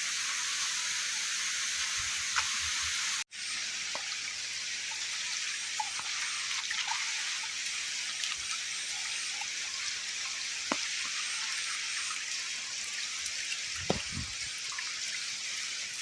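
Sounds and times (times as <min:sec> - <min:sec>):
high-pitched outdoor hiss: 0:00.0 - 0:16.0
dull knock: 0:13.8 - 0:14.3.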